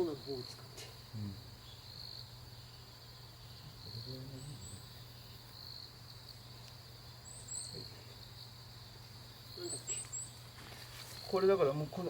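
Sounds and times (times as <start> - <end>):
crickets chirping: 0.0 - 12.0
faint voice: 9.6 - 10.1.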